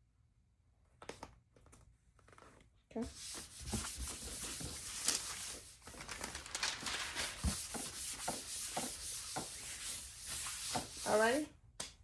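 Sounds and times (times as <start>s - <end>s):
paper rubbing and crinkling: 3.1s - 11.4s.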